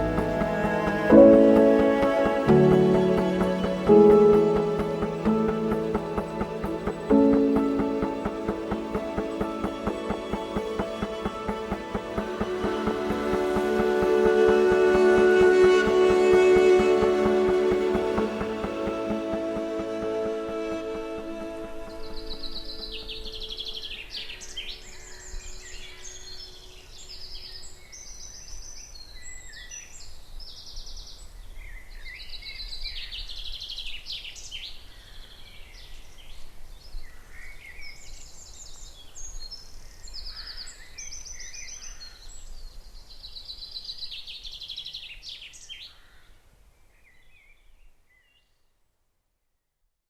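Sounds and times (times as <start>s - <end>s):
background music: 0.0s - 26.4s.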